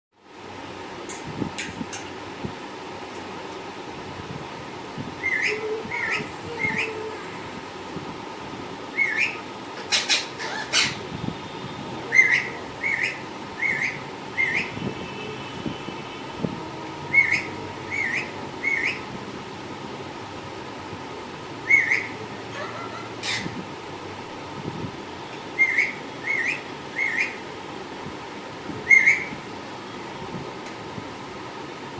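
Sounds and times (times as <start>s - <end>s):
steady background hum: 0.2s - 31.9s
parrot whistled chirps: 8.9s - 11.0s, 12.1s - 14.8s, 17.1s - 19.1s, 21.6s - 22.2s, 25.6s - 27.4s, 28.8s - 29.3s.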